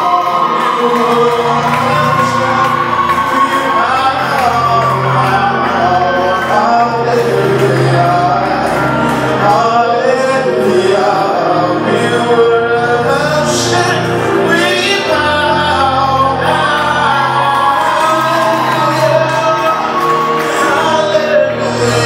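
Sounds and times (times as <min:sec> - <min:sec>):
gospel worship music: 0:00.0 - 0:22.0
held bass notes: 0:00.0 - 0:22.0
voices singing together: 0:00.0 - 0:22.0.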